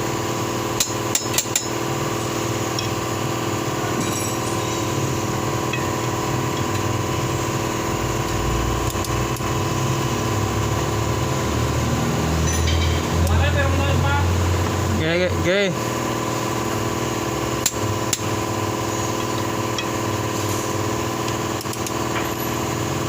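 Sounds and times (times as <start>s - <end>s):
steady mechanical hum: 0.0s - 23.0s
metal tools clinking: 3.8s - 5.1s, 12.4s - 13.0s.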